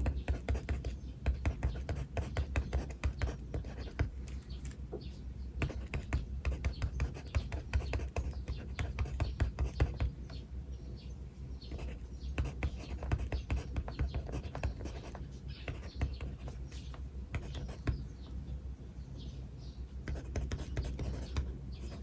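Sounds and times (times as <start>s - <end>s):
pen scratching on paper: 0.0s - 4.2s, 5.6s - 10.1s, 11.7s - 18.1s, 20.1s - 22.0s
birds chirping: 0.0s - 22.0s.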